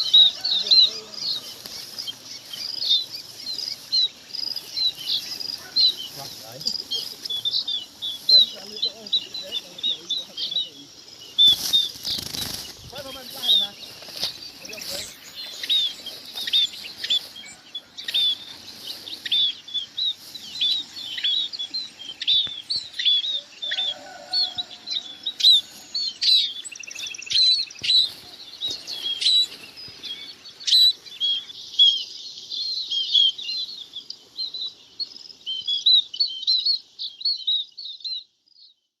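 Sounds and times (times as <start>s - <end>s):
birds calling: 0.0s - 38.4s.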